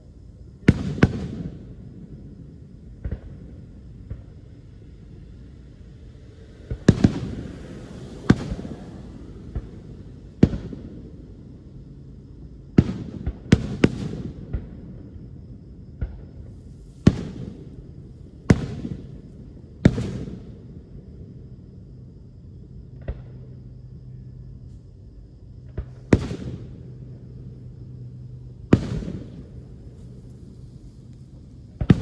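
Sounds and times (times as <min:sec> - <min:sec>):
fireworks bursting with booms: 0:00.6 - 0:02.2, 0:02.8 - 0:04.8, 0:06.6 - 0:11.4, 0:12.7 - 0:15.2, 0:15.9 - 0:21.3, 0:25.6 - 0:27.8, 0:28.4 - 0:32.0.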